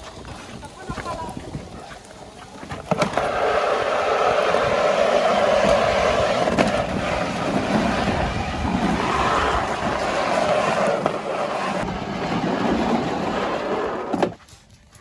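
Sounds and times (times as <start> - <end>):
lawn mower running: 2.8 - 14.4.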